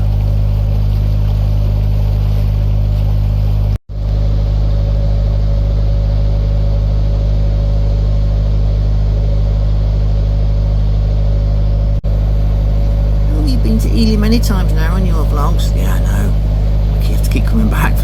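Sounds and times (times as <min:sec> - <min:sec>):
boat diesel engine droning: 0:00.0 - 0:03.7, 0:13.3 - 0:18.0.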